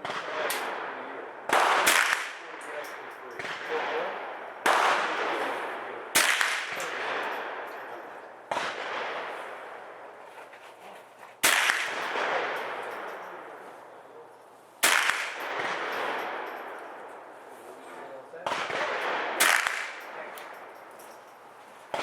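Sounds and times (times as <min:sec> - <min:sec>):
rifle shots echoing: 0:00.0 - 0:10.2, 0:11.4 - 0:14.2, 0:14.8 - 0:22.0.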